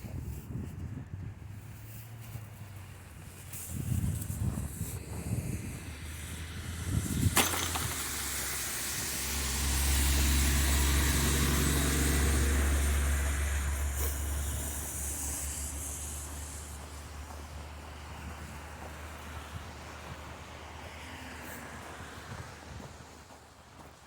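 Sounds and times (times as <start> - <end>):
vehicle passing with engine rumble: 0.1 - 24.0.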